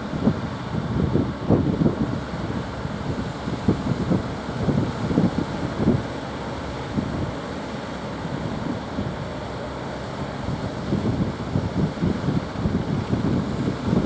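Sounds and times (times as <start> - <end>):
wind buffeting microphone: 0.0 - 7.4, 10.2 - 14.0.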